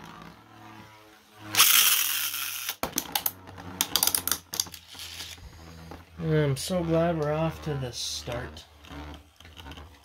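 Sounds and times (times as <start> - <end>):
spinning tops clicking and knocking: 1.6 - 5.4.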